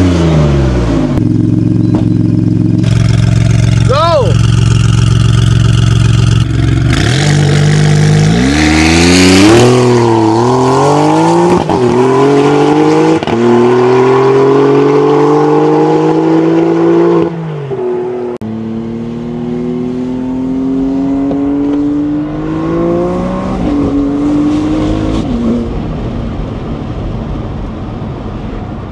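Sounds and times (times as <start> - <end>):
sports car accelerating: 0.0 - 28.1.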